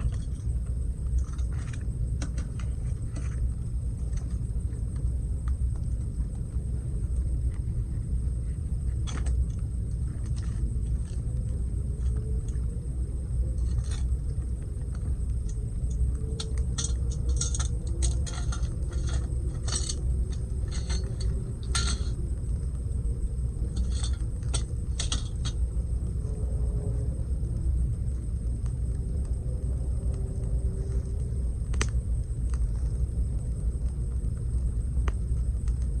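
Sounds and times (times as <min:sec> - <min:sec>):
campfire crackling: 0:00.0 - 0:36.0
steady low rumble: 0:00.0 - 0:36.0.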